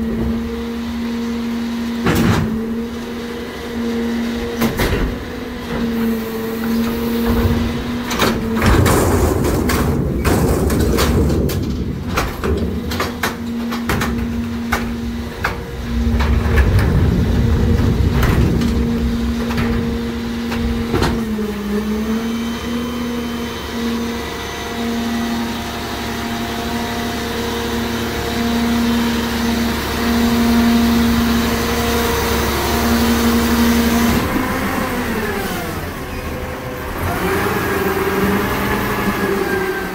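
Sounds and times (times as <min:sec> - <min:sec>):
trash banging and crunching: 0:00.0 - 0:03.0, 0:04.0 - 0:22.1
garbage truck engine droning: 0:00.0 - 0:39.9.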